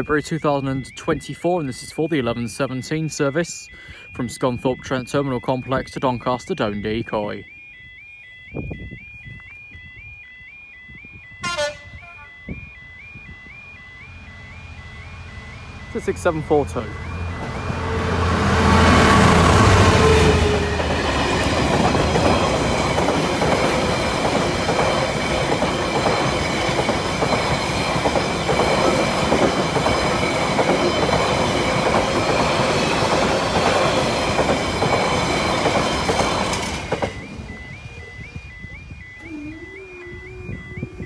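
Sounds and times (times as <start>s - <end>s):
level crossing alarm: 0.0s - 41.0s
diesel locomotive engine: 11.4s - 41.0s
train wagons rumbling over track: 14.0s - 41.0s.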